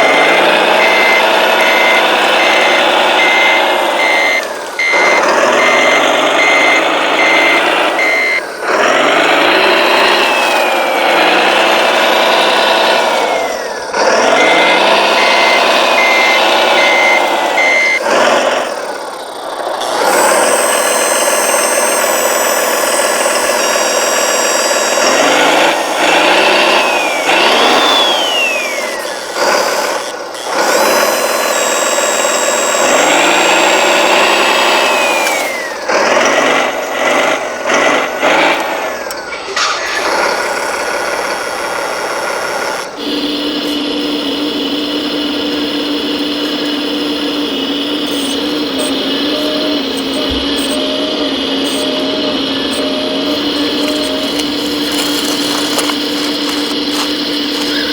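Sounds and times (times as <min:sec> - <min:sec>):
reversing beeper: 0:00.0 - 0:18.6, 0:38.2 - 0:41.4, 0:43.0 - 0:57.9
toy machine motors whining: 0:00.0 - 0:57.9.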